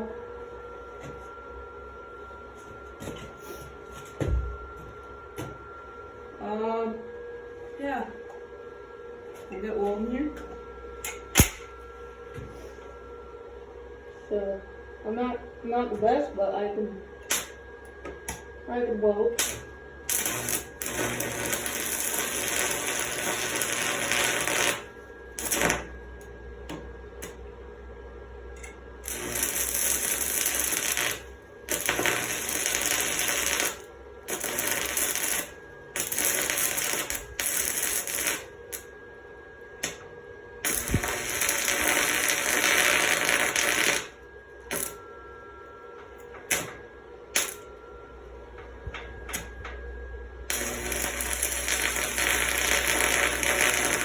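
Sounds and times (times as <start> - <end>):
welding arc crackling: 11.4 - 11.7, 19.4 - 26.0, 29.0 - 38.9, 40.6 - 45.0, 50.5 - 54.0.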